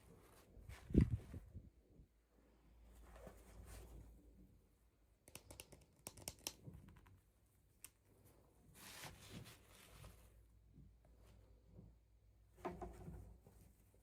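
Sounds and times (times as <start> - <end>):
small plastic clicks and taps: 5.2 - 7.2.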